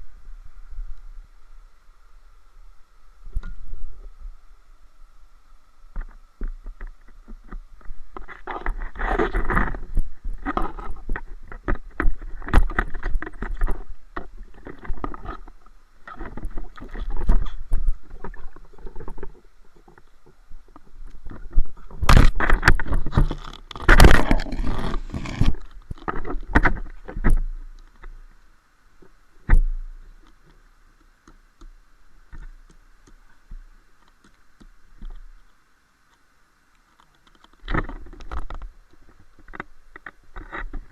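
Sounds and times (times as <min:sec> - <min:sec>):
water splashing and sloshing: 0:05.9 - 0:28.3.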